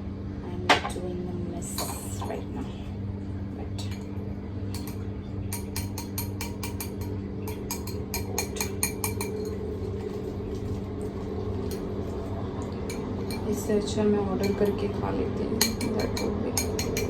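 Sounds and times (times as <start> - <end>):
steady low hum: 0.0 - 17.0
utensil clinking against a bowl: 3.8 - 17.0.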